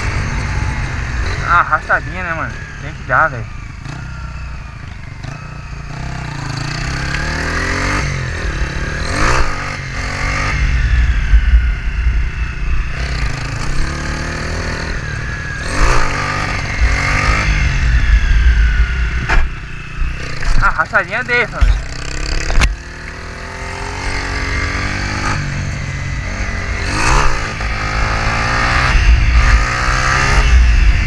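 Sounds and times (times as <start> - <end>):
motorcycle engine revving: 0.0 - 31.0
wind rushing over microphone: 6.9 - 31.0.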